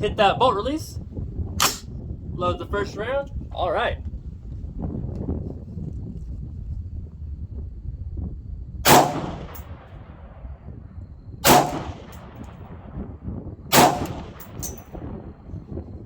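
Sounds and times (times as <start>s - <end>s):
rifle shots with echo: 8.8s - 10.4s, 11.4s - 13.0s, 13.7s - 15.1s.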